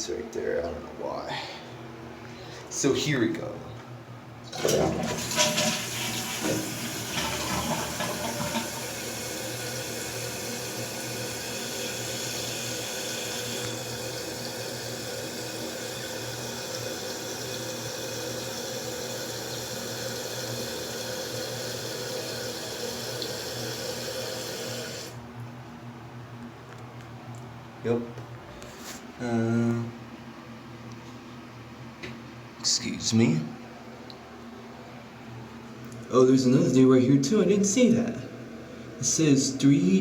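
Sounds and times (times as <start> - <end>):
toilet flushing: 4.5 - 25.2
toilet tank refilling: 4.5 - 25.2.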